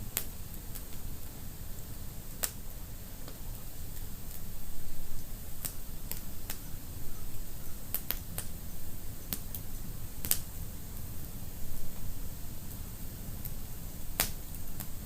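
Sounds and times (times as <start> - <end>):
low rumble of flames: 0.0 - 15.0
logs crackling and popping: 0.1 - 1.0, 1.7 - 4.5, 5.6 - 6.7, 7.9 - 8.6, 9.2 - 11.1, 13.4 - 15.0.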